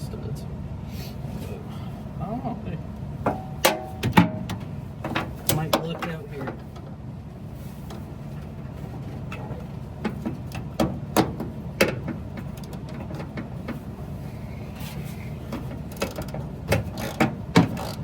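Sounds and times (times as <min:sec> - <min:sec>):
steady low hum: 0:00.0 - 0:18.0
sharp knocks: 0:03.2 - 0:06.6.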